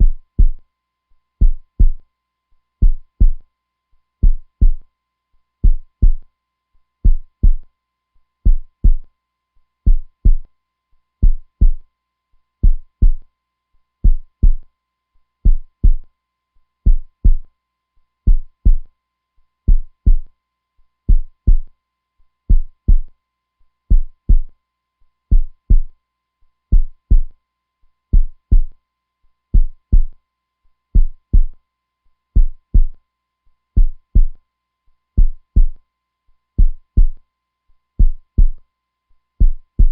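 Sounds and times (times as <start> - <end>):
heartbeat thumping: 0.0 - 0.6, 1.4 - 2.0, 2.8 - 3.4, 4.2 - 4.8, 5.6 - 6.2, 7.0 - 7.6, 8.5 - 9.0, 9.9 - 10.4, 11.2 - 11.8, 12.6 - 13.2, 14.0 - 14.6, 15.5 - 16.0, 16.9 - 17.4, 18.3 - 18.9, 19.7 - 20.3, 21.1 - 21.7, 22.5 - 23.1, 23.9 - 24.5, 25.3 - 25.9, 26.7 - 27.3, 28.2 - 28.7, 29.6 - 30.1, 31.0 - 31.6, 32.4 - 33.0, 33.8 - 34.4, 35.2 - 35.8, 36.6 - 37.2, 38.0 - 38.6, 39.4 - 39.9.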